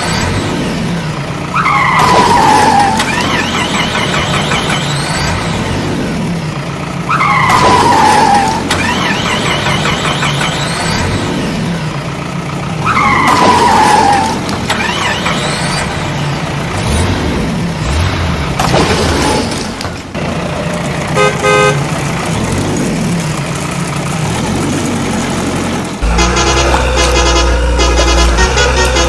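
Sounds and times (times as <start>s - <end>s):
cartoon engines running: 1.4s - 29.0s
falling squeal: 7.1s - 10.9s, 12.9s - 15.9s
short horn honks: 26.0s - 29.0s.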